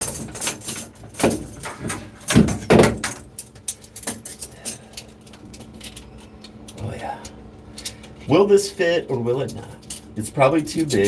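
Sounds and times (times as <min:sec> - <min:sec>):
hard objects knocking and rattling: 0:00.0 - 0:04.7.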